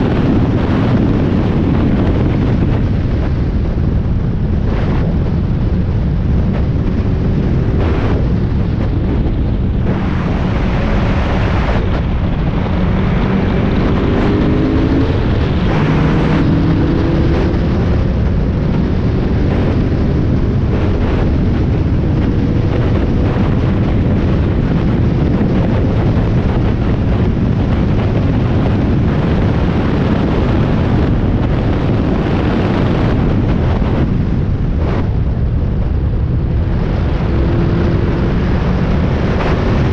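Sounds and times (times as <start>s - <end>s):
wind buffeting: 0.0s - 39.9s
race car engine revving: 6.9s - 21.4s.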